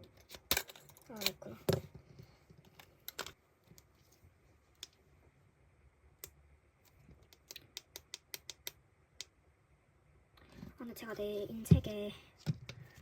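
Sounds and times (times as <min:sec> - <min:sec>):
small objects clicking and tapping: 0:00.0 - 0:03.9, 0:06.2 - 0:09.4.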